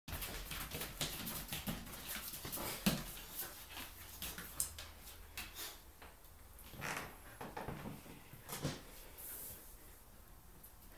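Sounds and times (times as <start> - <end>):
dogs scuffling: 0.1 - 5.8.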